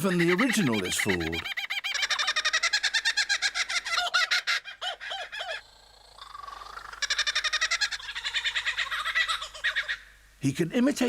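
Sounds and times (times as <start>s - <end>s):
bird chattering song: 0.0s - 3.3s.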